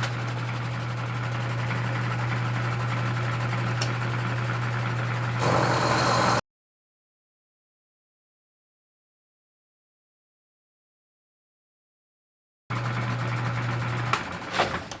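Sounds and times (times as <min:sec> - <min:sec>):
machine tool motor hum: 0:05.3 - 0:06.4
end mill cutting metal: 0:05.4 - 0:06.4.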